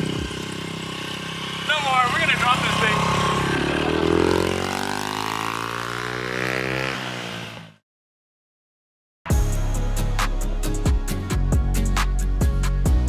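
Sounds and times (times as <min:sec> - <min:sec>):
pit bike engine revving: 0:00.0 - 0:07.8
music with drum beat: 0:09.3 - 0:13.0.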